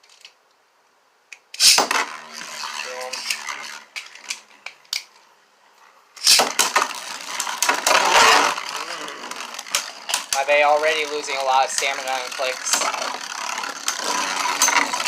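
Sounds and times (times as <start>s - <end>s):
spinning top clacking on landing: 1.6s - 4.8s, 6.2s - 15.0s
spinning tops clattering: 6.2s - 15.0s.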